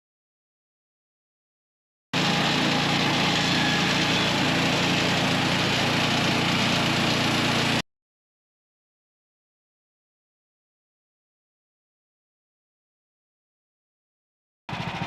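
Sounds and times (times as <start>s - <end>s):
small gasoline engine running: 2.2s - 7.8s, 14.7s - 15.0s.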